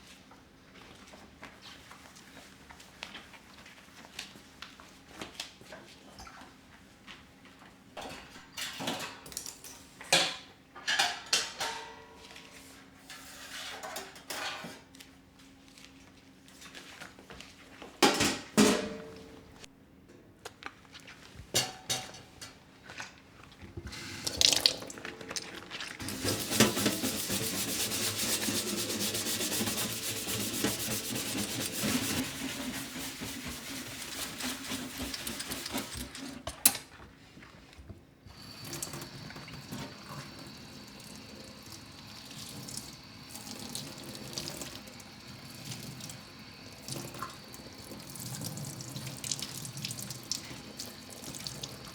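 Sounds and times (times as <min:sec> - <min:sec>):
tap running into sink: 0:23.8 - 0:28.2.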